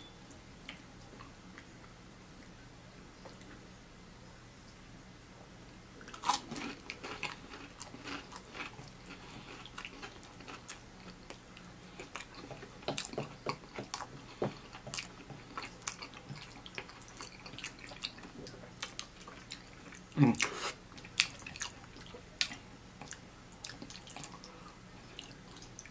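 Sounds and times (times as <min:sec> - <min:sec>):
person chewing: 0:06.0 - 0:25.9.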